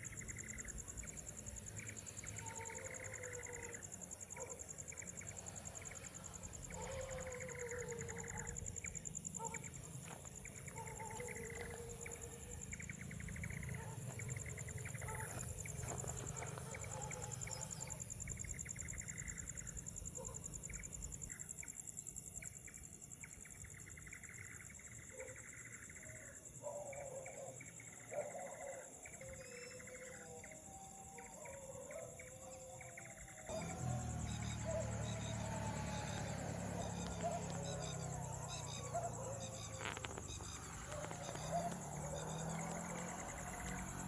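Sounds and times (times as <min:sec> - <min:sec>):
high-pitched insect trill: 0:00.0 - 0:24.8, 0:32.9 - 0:44.0
low wavering animal calls: 0:01.8 - 0:09.7, 0:28.2 - 0:44.0.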